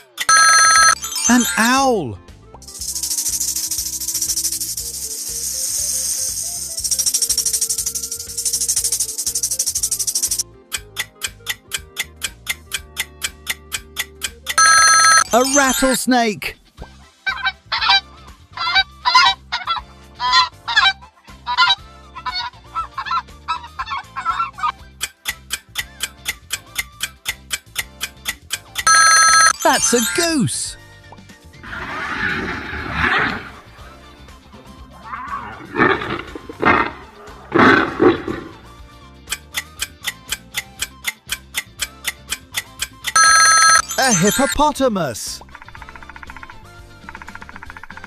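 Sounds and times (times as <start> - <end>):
countdown timer ticking rapidly: 0.3 - 2.0, 6.8 - 16.1, 28.8 - 30.5, 39.3 - 44.9
hippopotamus bellowing grunts: 35.0 - 38.6.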